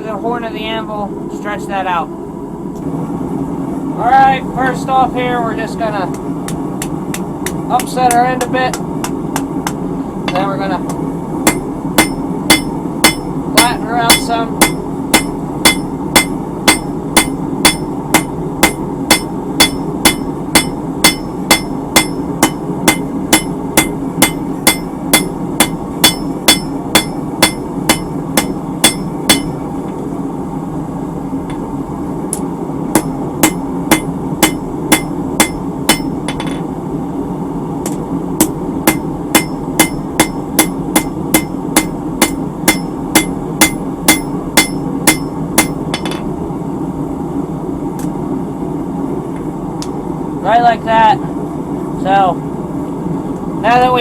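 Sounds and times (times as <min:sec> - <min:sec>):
hammer ringing on anvil: 0:11.5 - 0:29.6, 0:33.0 - 0:36.6, 0:38.4 - 0:46.3.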